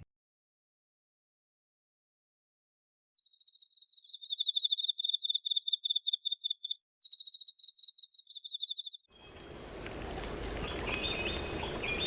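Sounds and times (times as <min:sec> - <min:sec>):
cricket chirping: 0:03.2 - 0:09.1
outdoor background hiss: 0:09.2 - 0:12.0.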